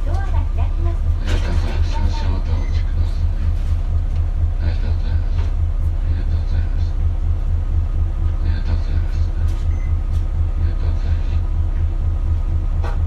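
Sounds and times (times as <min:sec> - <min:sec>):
bus diesel engine rumbling: 0:00.0 - 0:13.0.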